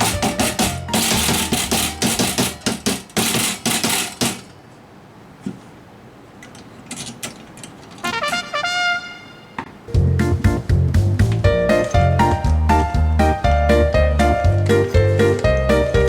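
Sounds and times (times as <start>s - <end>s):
music with clattering percussive beat: 0.0s - 4.1s, 10.0s - 16.0s.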